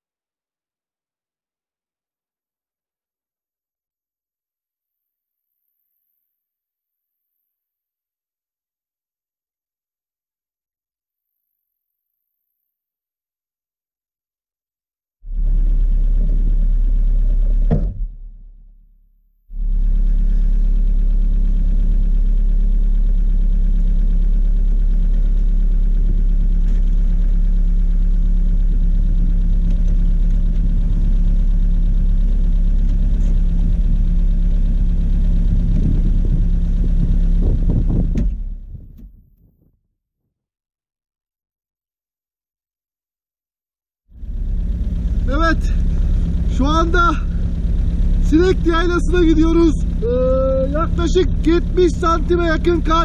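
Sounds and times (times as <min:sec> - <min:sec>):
car engine idling: 0:15.3 - 0:18.8, 0:19.5 - 0:39.2, 0:44.2 - 0:53.0.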